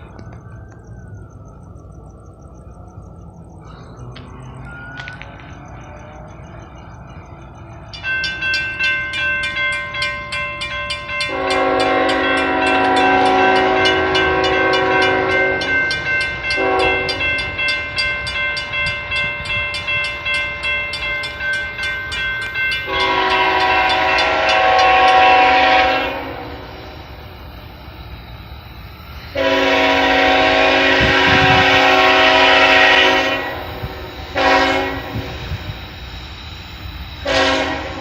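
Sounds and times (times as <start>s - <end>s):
crossing warning bell ringing: 0.0s - 38.0s
locomotive air horn blasts: 11.2s - 15.8s, 16.5s - 17.4s, 22.9s - 26.8s, 29.3s - 35.8s, 37.2s - 38.0s.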